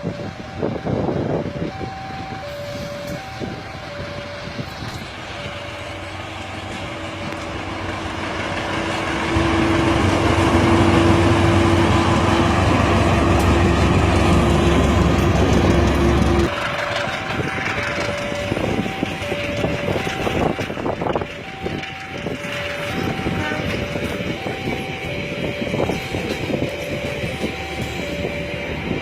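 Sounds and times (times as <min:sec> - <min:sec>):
two-tone warning signal: 0:00.0 - 0:07.7, 0:17.4 - 0:29.0
train running on rails: 0:00.0 - 0:29.0.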